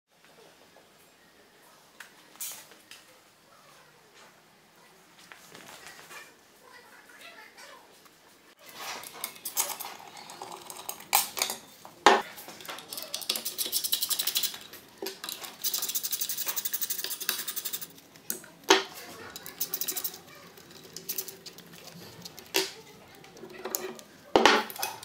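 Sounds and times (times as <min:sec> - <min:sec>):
ratchet wrench clicking: 0:13.2 - 0:17.9, 0:19.4 - 0:20.2.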